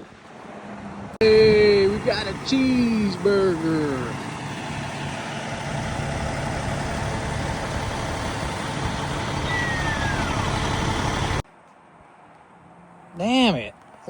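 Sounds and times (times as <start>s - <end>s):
truck engine idling: 1.2s - 11.4s
faint falling whistle: 9.4s - 10.6s.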